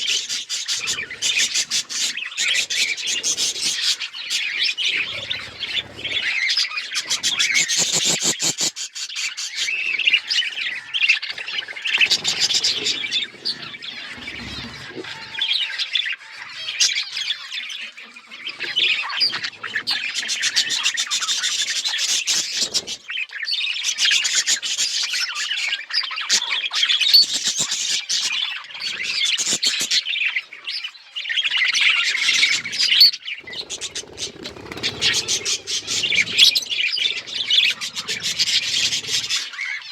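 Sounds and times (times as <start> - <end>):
budgerigars chattering and chirping: 0.0 - 39.9
harsh squawks: 9.5 - 17.4, 31.5 - 39.9.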